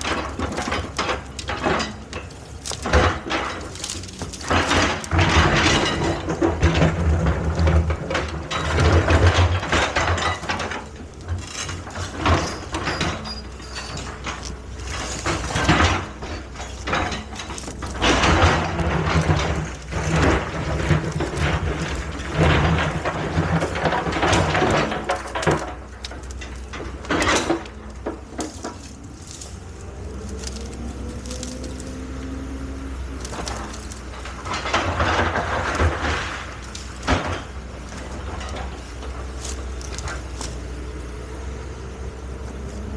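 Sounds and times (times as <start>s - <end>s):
excavator diesel engine: 0.0s - 42.9s
metallic clanks and knocks: 0.0s - 42.9s.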